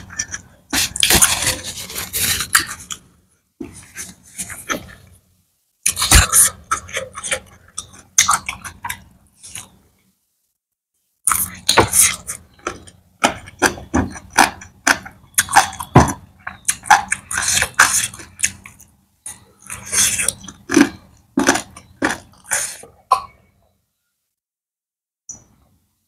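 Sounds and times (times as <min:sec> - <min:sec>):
wet chewing and lip-smacking: 0:05.9 - 0:09.8, 0:11.2 - 0:23.4.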